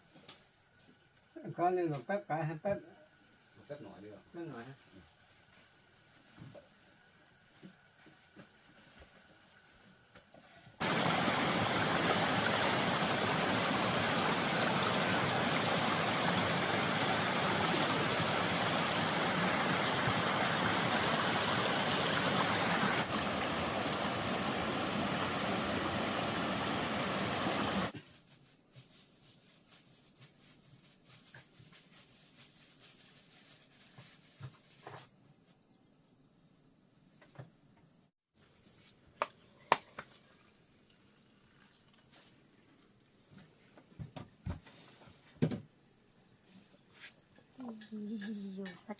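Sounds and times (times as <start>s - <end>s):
steady high whine: 10.8s - 27.9s
stream water rushing: 10.8s - 27.9s.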